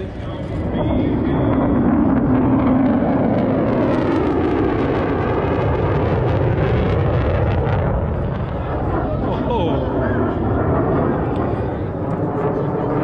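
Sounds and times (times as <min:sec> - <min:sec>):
aircraft engine flying past: 0:00.0 - 0:13.0.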